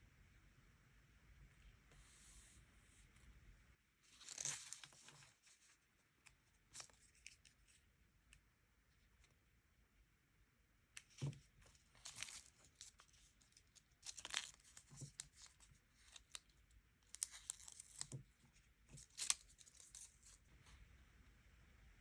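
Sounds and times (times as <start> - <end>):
paper tearing and crinkling: 4.2 - 5.2, 11.9 - 16.4.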